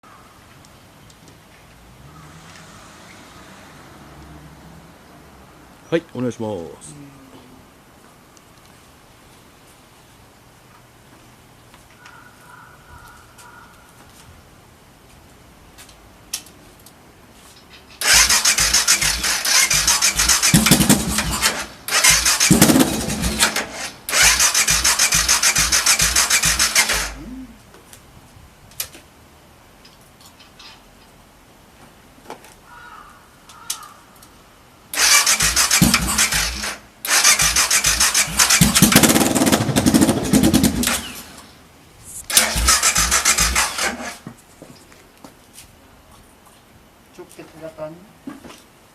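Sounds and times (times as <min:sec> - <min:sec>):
motorcycle engine cranking: 0:17.9 - 0:27.2, 0:35.0 - 0:41.5, 0:42.1 - 0:44.2.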